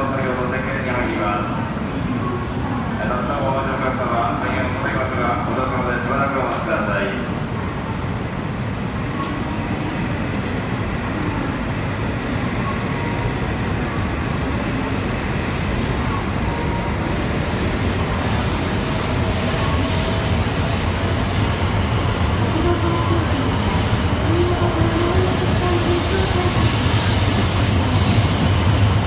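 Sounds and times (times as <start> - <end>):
train pulling out: 9.0 - 29.0.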